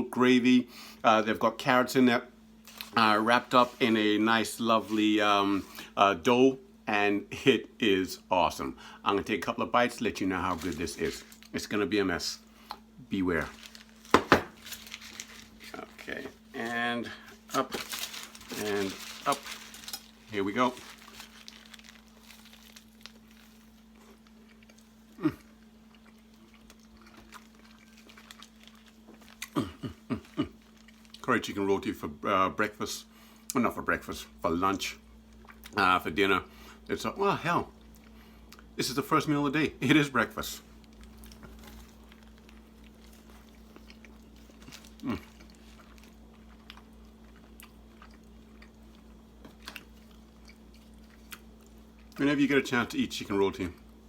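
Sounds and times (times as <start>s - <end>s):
man chewing food: 12.4s - 31.2s, 35.2s - 35.8s, 40.7s - 52.2s.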